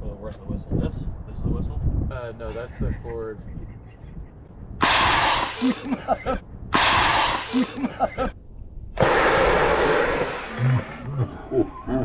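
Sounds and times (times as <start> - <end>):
gas hissing as vest inflates: 4.8 - 5.8, 6.8 - 7.7.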